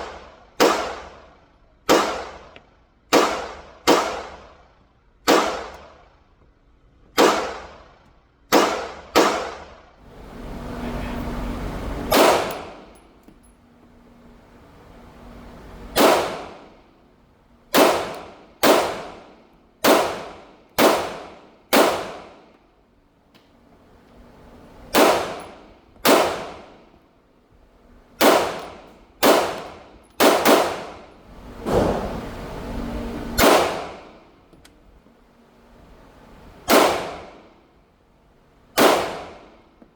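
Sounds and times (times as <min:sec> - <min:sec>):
pistol shots echoing: 0:00.6 - 0:01.2, 0:01.9 - 0:02.5, 0:03.1 - 0:04.4, 0:05.3 - 0:05.9, 0:07.2 - 0:07.8, 0:08.5 - 0:09.7, 0:12.1 - 0:13.0, 0:15.9 - 0:16.8, 0:17.7 - 0:22.5, 0:24.9 - 0:26.9, 0:28.2 - 0:32.0, 0:33.4 - 0:34.2, 0:36.7 - 0:37.5, 0:38.8 - 0:39.6.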